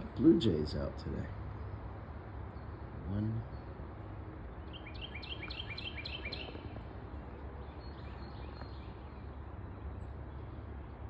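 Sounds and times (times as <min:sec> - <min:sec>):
songbird calling: 0:04.6 - 0:06.7.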